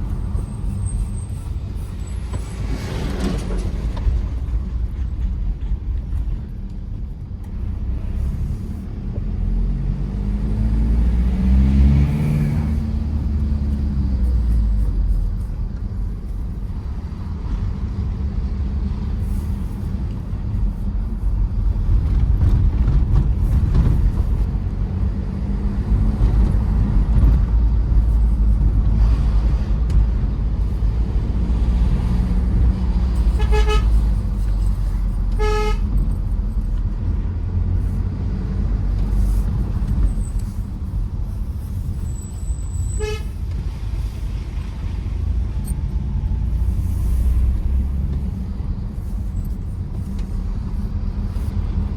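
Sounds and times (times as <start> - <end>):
diesel engine and tyre noise: 0.0 - 51.9
car horn toots: 33.3 - 34.0, 35.4 - 36.0, 42.9 - 43.4.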